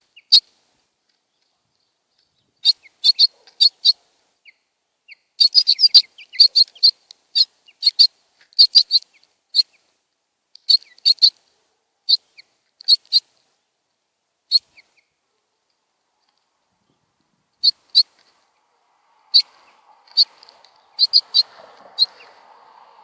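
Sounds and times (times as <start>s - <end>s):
sparrows chirping: 0.1s - 0.5s, 1.3s - 9.9s, 10.6s - 11.4s, 16.2s - 23.0s.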